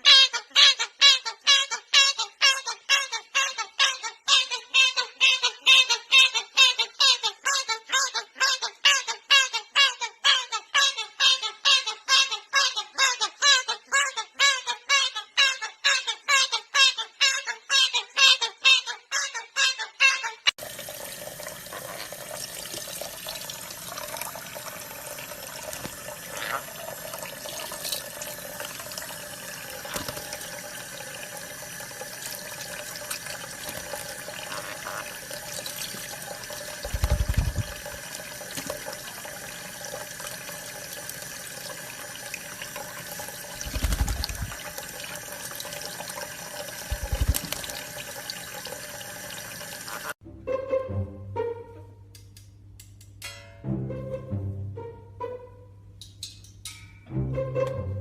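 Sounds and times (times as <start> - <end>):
running water: 20.6 - 50.2.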